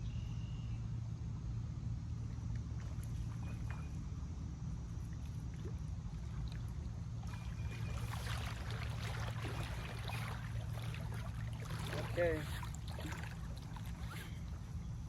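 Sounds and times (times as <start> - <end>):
steady low rumble: 0.0 - 15.0
water trickling: 5.1 - 15.0.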